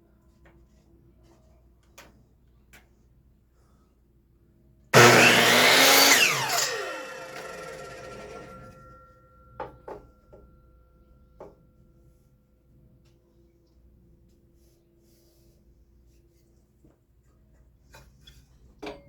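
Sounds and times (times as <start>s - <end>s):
electric power saw running: 5.0s - 8.8s.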